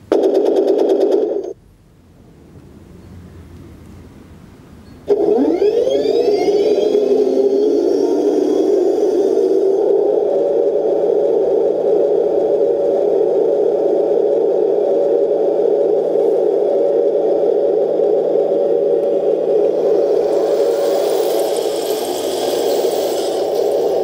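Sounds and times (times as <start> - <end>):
toy tank mechanical drone: 5.1 - 9.8, 19.8 - 24.0.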